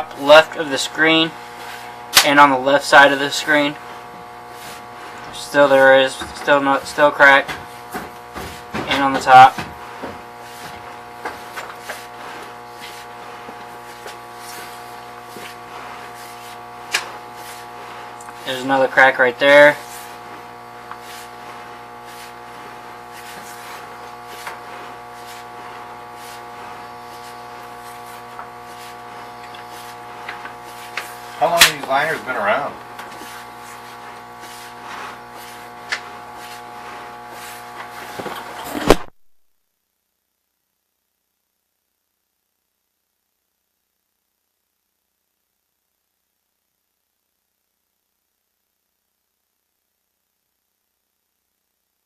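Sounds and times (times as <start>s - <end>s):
electrical machine hum: 0.0s - 39.1s.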